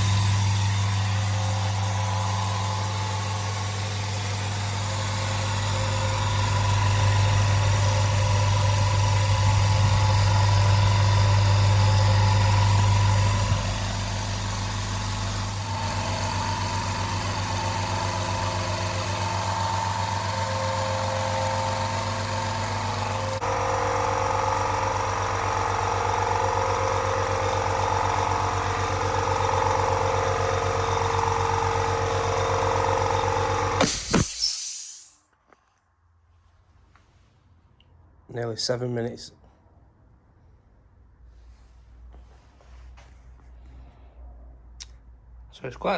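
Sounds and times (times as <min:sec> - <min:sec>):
air compressor motor hum: 0:00.0 - 0:35.2.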